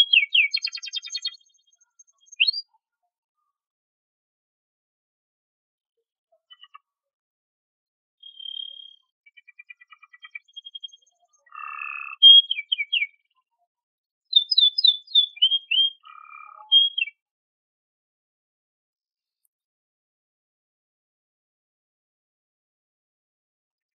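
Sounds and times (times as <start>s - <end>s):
canary singing: 0.0s - 1.5s, 2.1s - 2.6s, 8.2s - 9.0s, 9.7s - 13.2s, 14.3s - 17.2s.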